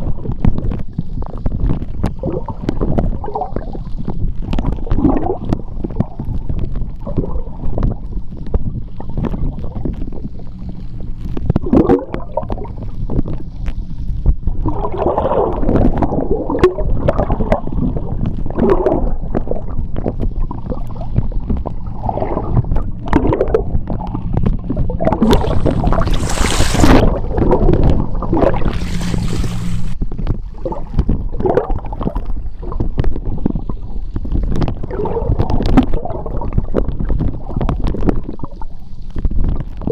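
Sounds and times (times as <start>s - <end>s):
underwater gurgling and churning: 0.0s - 39.9s
steady low hum: 7.5s - 14.8s, 19.2s - 30.5s
hissing rushes of bubbles: 25.2s - 30.0s.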